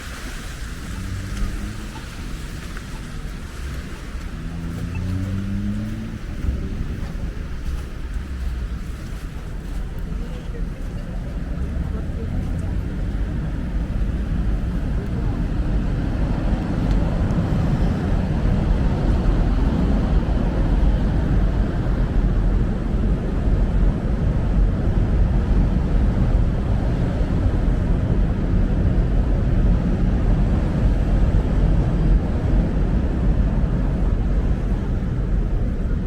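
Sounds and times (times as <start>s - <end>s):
street traffic rumble: 0.0s - 36.0s.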